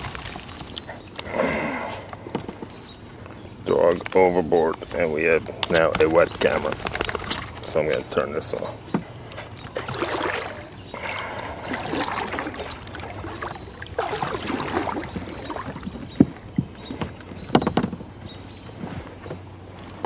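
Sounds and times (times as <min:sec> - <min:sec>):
water splashing around kayak: 0:00.0 - 0:01.0, 0:09.0 - 0:17.9
knocks against hull: 0:14.0 - 0:18.0.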